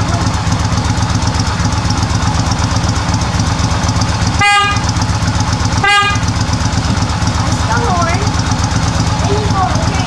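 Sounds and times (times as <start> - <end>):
motorcycle engine idling: 0.0 - 10.0
horn beep: 4.3 - 5.1, 5.7 - 6.4.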